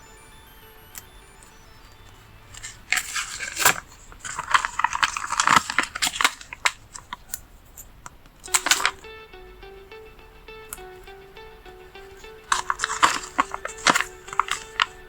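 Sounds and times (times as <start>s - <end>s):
paper crinkling and rustling: 2.5s - 7.4s, 8.5s - 9.0s, 12.5s - 15.0s.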